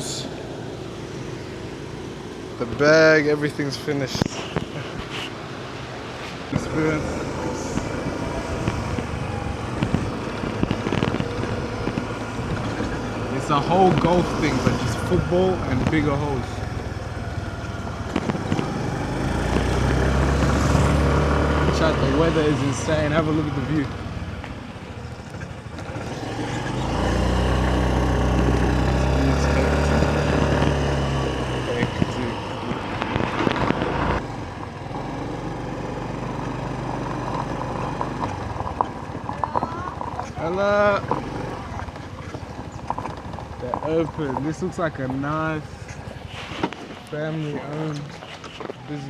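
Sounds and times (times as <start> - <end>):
motor vehicle running: 0.0 - 49.0.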